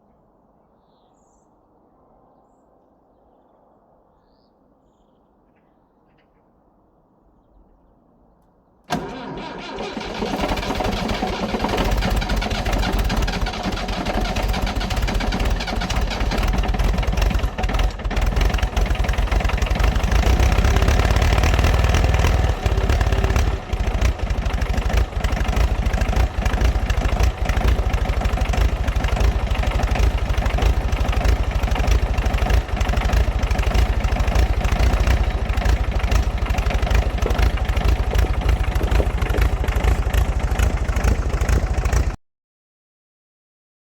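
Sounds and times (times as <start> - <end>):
tractor engine starting and idling: 8.9 - 42.2.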